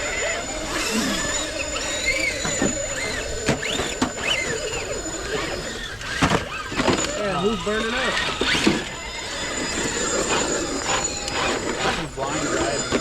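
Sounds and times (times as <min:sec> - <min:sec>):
toy truck electric motors whining: 0:00.0 - 0:13.0.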